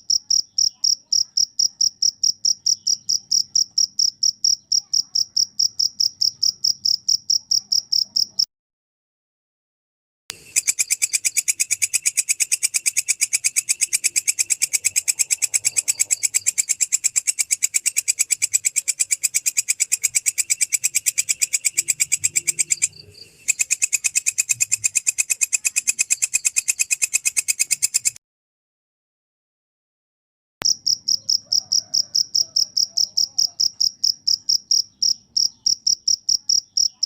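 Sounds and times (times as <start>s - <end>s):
insect chirping: 0.0s - 8.5s, 10.3s - 28.2s, 30.6s - 37.0s.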